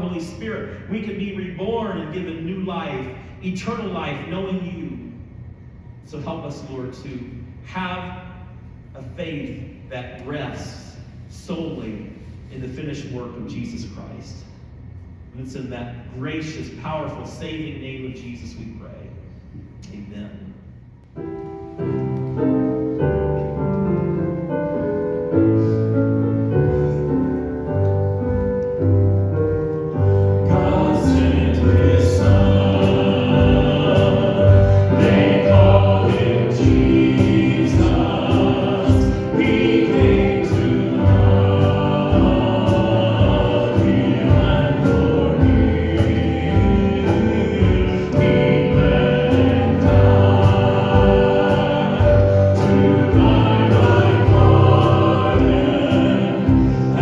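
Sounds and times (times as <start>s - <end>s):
piano chords: 21.2s - 57.0s
band playing worship music: 22.2s - 57.0s
steady drum beat: 28.3s - 57.0s.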